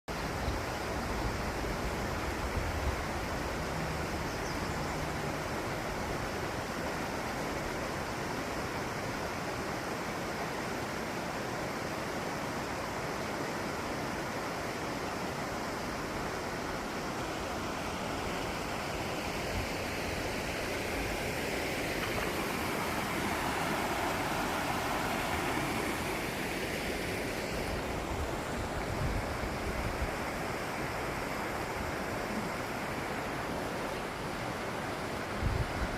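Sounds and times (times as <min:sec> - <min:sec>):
moving water rushing: 0:00.2 - 0:35.9.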